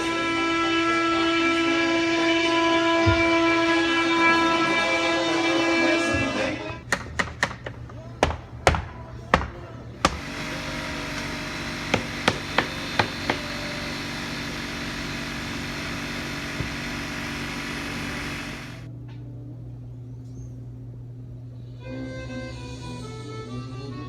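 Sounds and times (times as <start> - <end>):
motor running: 2.6 - 6.9, 10.0 - 18.9
sharp knocks: 6.9 - 13.7.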